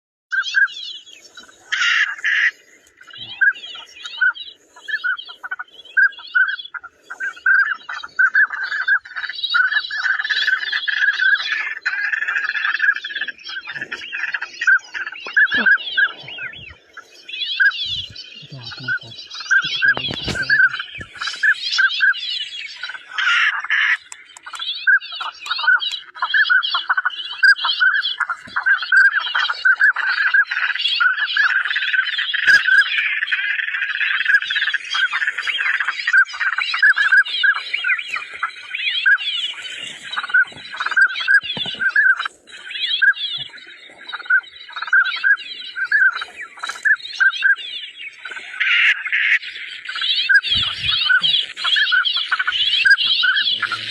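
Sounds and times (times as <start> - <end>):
flock of birds calling: 0.3 - 53.9.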